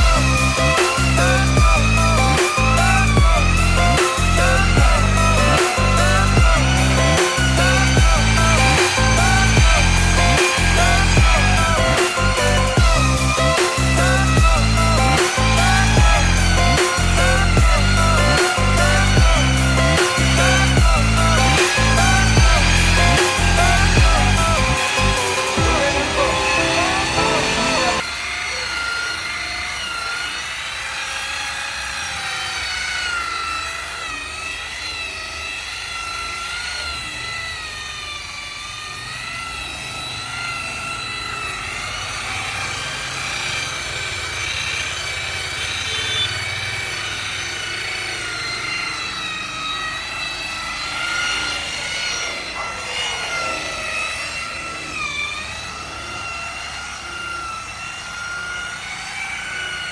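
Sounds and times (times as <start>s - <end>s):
polishing machine motor whine: 0.0s - 59.9s.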